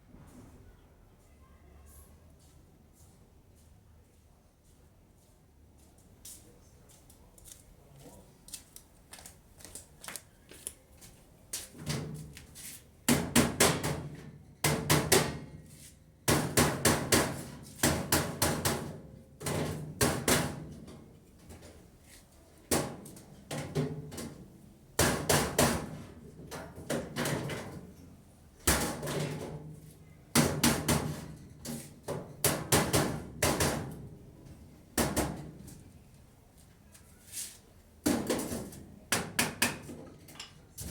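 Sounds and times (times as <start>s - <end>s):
sharp knocks and clattering: 28.6s - 34.2s.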